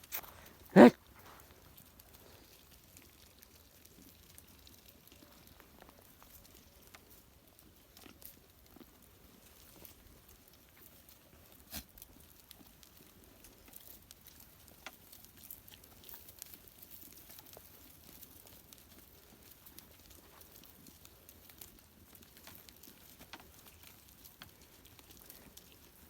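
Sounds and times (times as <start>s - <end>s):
goats rustling in undergrowth: 9.0s - 26.0s.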